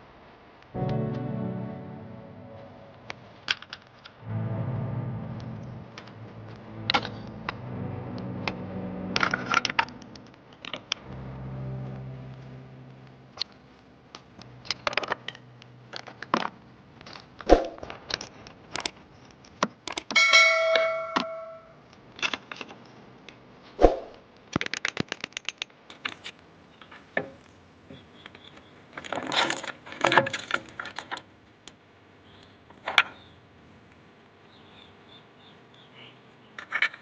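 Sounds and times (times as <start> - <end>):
metal piece ringing: 20.2 - 21.8.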